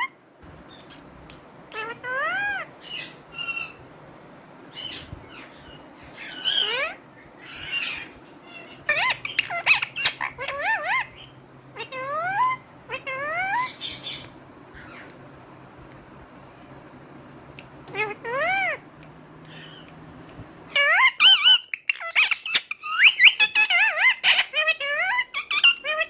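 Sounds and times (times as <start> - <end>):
parrot calls and whistles: 4.7 - 15.1, 17.9 - 18.8, 20.7 - 26.0.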